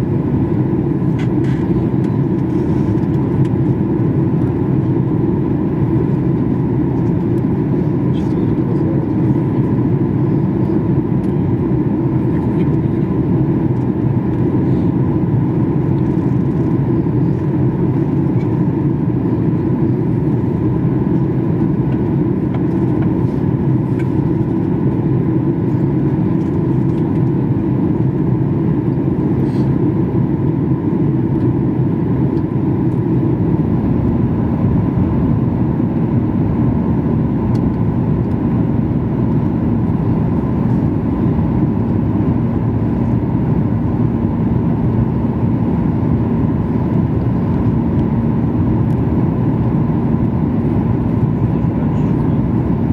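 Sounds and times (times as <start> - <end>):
deep rush of engines and airflow: 0.0 - 52.9.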